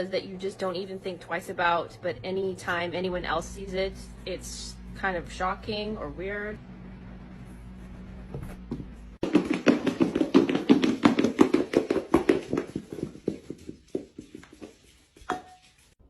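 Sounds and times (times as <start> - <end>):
low steady hum: 0.0 - 14.8
rapid rhythmic taps: 9.2 - 15.8.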